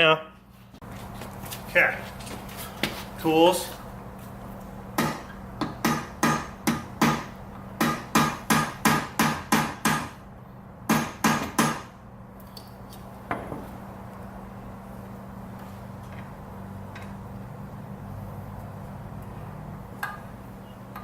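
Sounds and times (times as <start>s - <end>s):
hammer tapping on metal: 5.0s - 10.2s, 10.9s - 11.9s.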